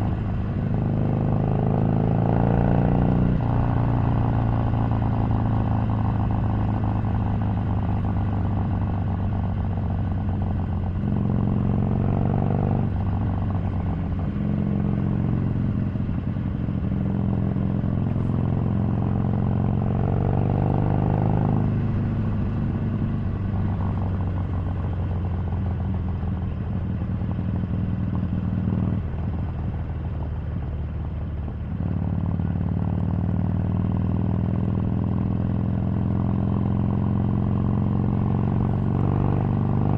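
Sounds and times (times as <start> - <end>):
motorcycle engine revving through gears: 0.0 - 26.0, 31.6 - 39.9.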